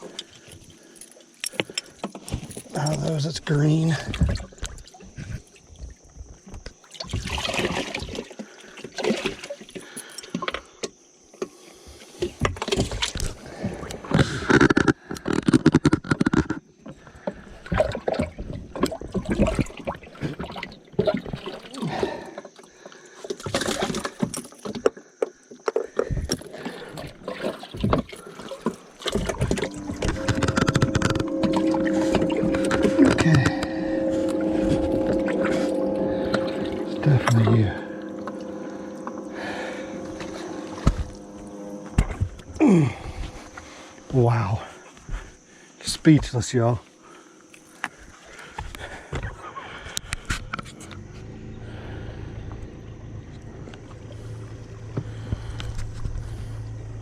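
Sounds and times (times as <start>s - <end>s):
knocks and clatter of gear: 0.2s - 6.8s, 12.2s - 19.2s, 23.3s - 31.3s
motor humming: 28.2s - 45.4s, 49.7s - 57.0s.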